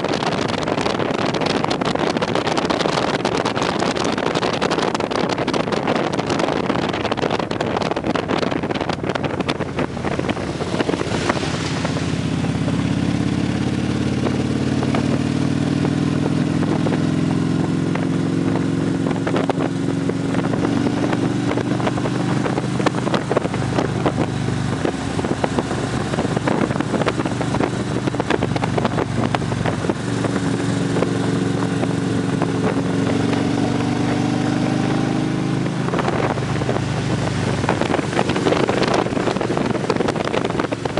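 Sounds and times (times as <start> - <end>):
motorcycle engines running: 0.0 - 40.9
wind rush: 0.0 - 40.9.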